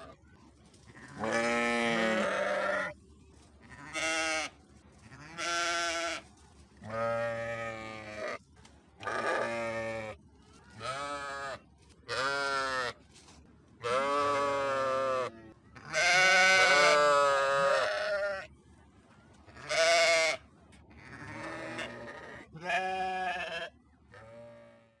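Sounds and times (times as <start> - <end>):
sheep bleating: 1.0 - 3.0, 3.7 - 4.5, 5.1 - 6.2, 9.0 - 10.2, 10.8 - 13.0, 13.8 - 18.5, 19.6 - 20.4, 21.0 - 24.9.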